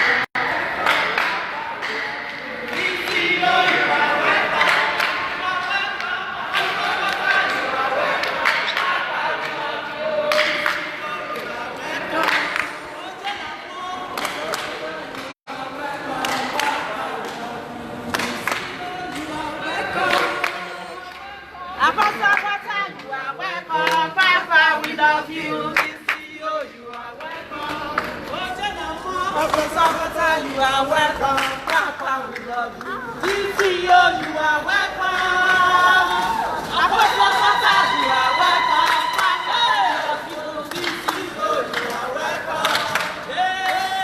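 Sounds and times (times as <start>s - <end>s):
hand claps: 0.0s - 3.8s, 4.6s - 9.6s, 10.3s - 11.5s, 12.2s - 12.8s, 14.2s - 15.4s, 18.1s - 19.3s, 25.8s - 26.3s, 40.3s - 43.9s
people singing together: 0.0s - 44.0s.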